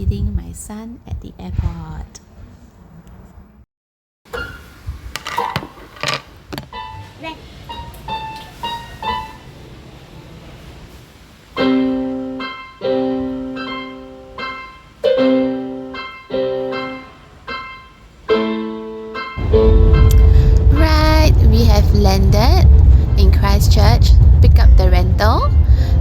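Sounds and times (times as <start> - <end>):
piano music: 6.7 - 9.7, 11.6 - 26.0.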